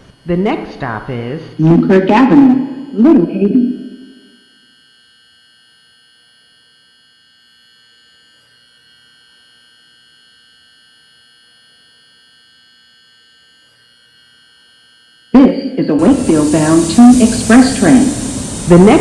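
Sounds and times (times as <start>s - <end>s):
faint electronic whine: 16.0s - 19.0s
light hiss: 16.0s - 19.0s.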